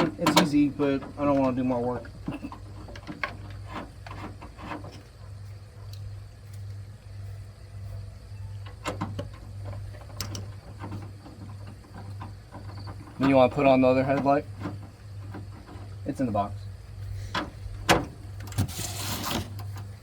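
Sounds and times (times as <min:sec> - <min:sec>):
plastic parts clicking and knocking: 0:00.0 - 0:05.0, 0:08.6 - 0:16.1
pulsing low hum: 0:04.4 - 0:13.2.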